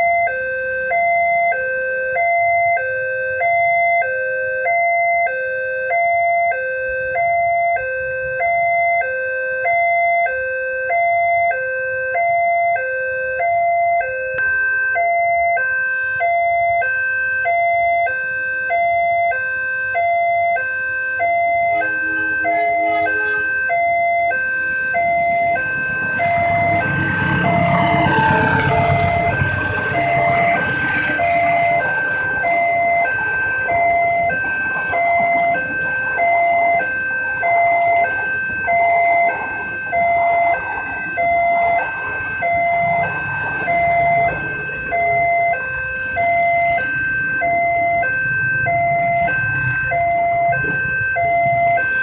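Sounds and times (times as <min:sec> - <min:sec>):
two-tone crossing alarm: 0:00.0 - 0:52.0
approaching rail vehicle rumble: 0:21.2 - 0:52.0.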